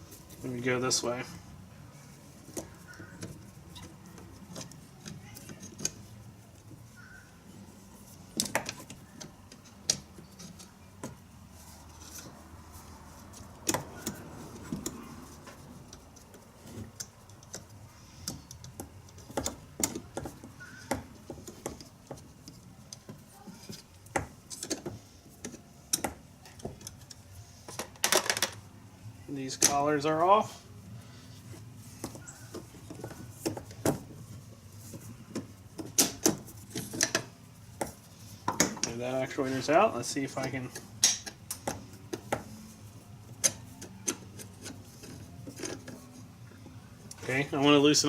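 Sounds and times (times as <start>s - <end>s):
hand tools clicking and knocking metal: 34.9s - 42.6s.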